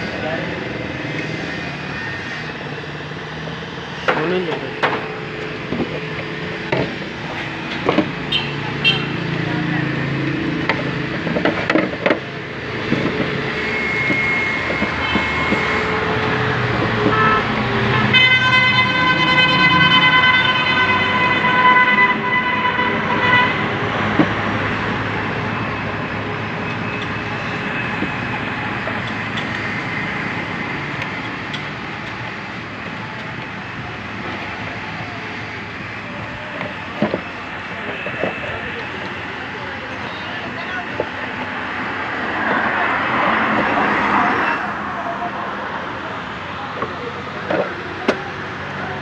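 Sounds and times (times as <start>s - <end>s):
street traffic noise: 0.0s - 49.0s.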